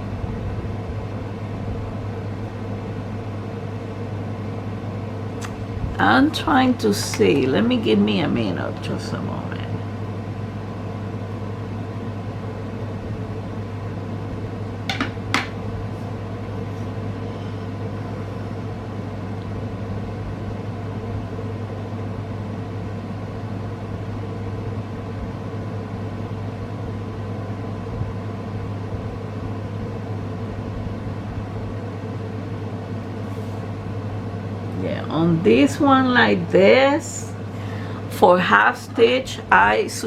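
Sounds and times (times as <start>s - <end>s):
machine humming: 0.0s - 40.0s.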